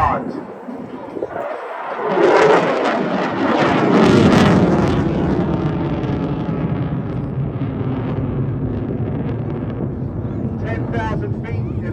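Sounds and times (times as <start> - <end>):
fighter jet engine roar: 0.0 - 11.9.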